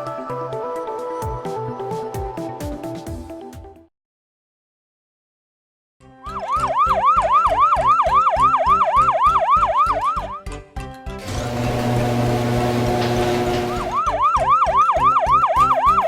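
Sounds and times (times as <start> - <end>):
yelping siren effect: 6.3 - 10.5, 13.9 - 16.0
music with steady beat: 13.0 - 16.0.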